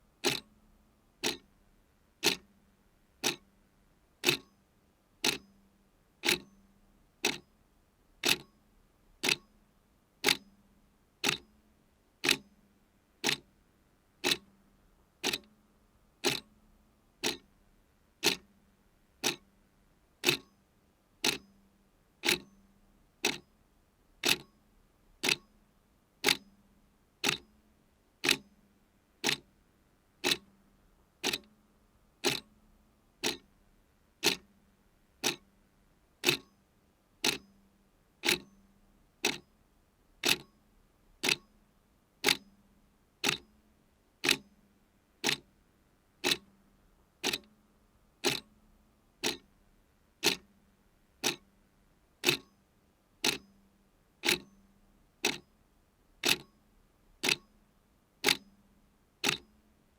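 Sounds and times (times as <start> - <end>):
clock ticking: 0.2 - 0.5, 1.2 - 1.4, 2.2 - 2.4, 3.2 - 3.4, 4.2 - 4.5, 5.2 - 5.4, 6.2 - 6.5, 8.2 - 8.5, 9.2 - 9.4, 10.2 - 10.4, 11.2 - 11.4, 12.2 - 12.4, 13.2 - 13.4, 14.2 - 14.4, 15.2 - 15.5, 16.2 - 16.5, 17.2 - 17.5, 18.2 - 18.4, 19.2 - 19.4, 20.2 - 20.5, 21.2 - 21.4, 22.2 - 22.5, 23.2 - 23.4, 24.2 - 24.5, 25.2 - 25.4, 26.2 - 26.4, 27.2 - 27.4, 28.2 - 28.4, 29.2 - 29.4, 30.2 - 30.5, 31.2 - 31.5, 32.2 - 32.5, 33.2 - 33.5, 34.2 - 34.5, 35.2 - 35.4, 36.2 - 36.5, 37.2 - 37.5, 38.2 - 38.5, 39.2 - 39.4, 40.2 - 40.5, 41.2 - 41.5, 42.2 - 42.4, 43.2 - 43.4, 44.2 - 44.4, 45.2 - 45.4, 46.2 - 46.5, 47.2 - 47.5, 48.2 - 48.5, 49.2 - 49.5, 50.2 - 50.5, 51.2 - 51.4, 52.2 - 52.5, 53.2 - 53.5, 54.2 - 54.6, 55.2 - 55.4, 56.2 - 56.5, 57.2 - 57.5, 58.2 - 58.4, 59.2 - 59.5.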